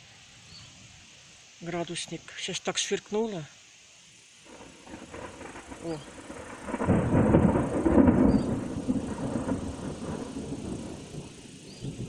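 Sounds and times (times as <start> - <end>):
thunder crack and rumble: 4.5 - 12.0.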